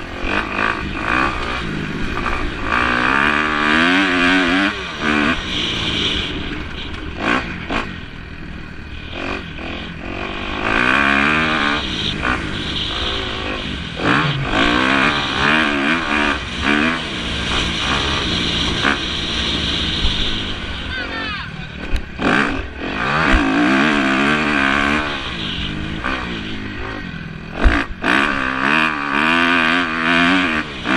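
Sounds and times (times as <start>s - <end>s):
motorcycle engines revving: 0.0s - 30.9s.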